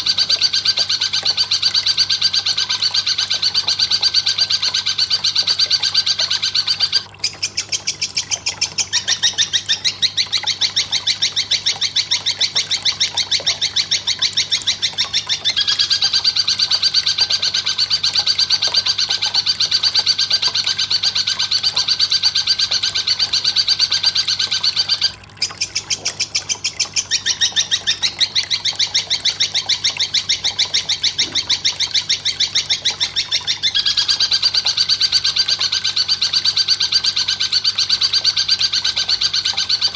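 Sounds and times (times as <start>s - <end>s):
high-pitched bird chattering calls: 0.0s - 39.9s.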